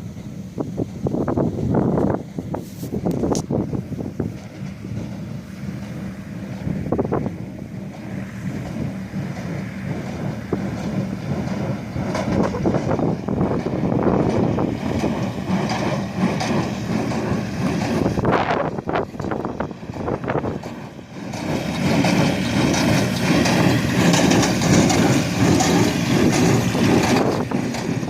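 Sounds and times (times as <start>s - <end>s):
baler machine humming: 0.0s - 28.0s
mechanical clacks and knocks: 5.8s - 28.0s.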